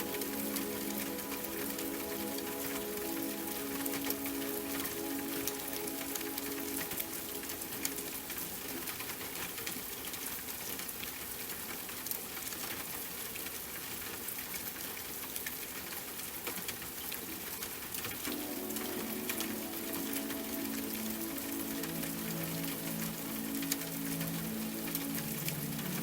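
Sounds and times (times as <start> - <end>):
soft background music: 0.0 - 9.2, 18.2 - 26.0
steady rain: 0.0 - 26.0.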